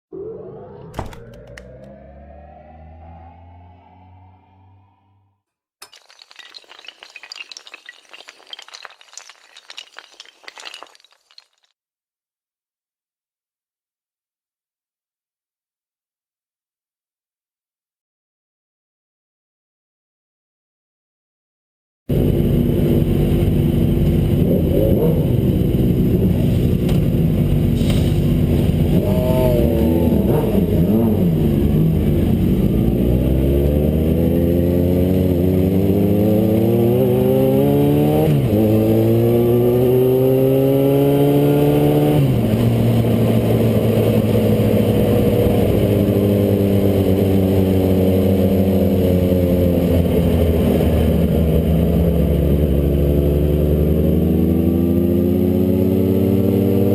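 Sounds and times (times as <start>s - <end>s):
motorcycle engine revving: 0.1s - 5.3s, 22.1s - 56.9s.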